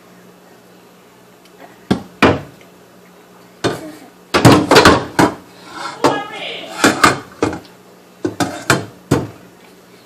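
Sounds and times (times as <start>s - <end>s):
objects knocking and clattering: 3.6s - 6.2s, 6.8s - 7.6s, 8.2s - 9.4s.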